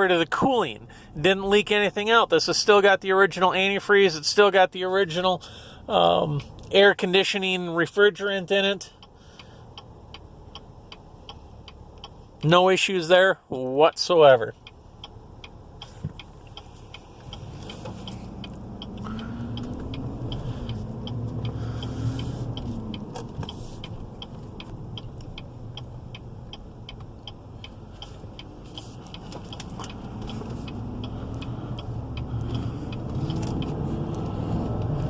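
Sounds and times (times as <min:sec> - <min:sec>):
steady ticking: 0:08.6 - 0:12.5, 0:13.9 - 0:35.0
engine accelerating from inside car: 0:14.6 - 0:35.0.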